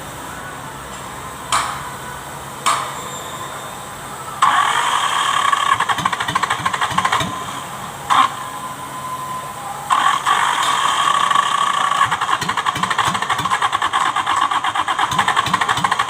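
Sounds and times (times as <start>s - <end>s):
diesel engine starter cranking: 4.4s - 8.4s, 9.9s - 16.0s.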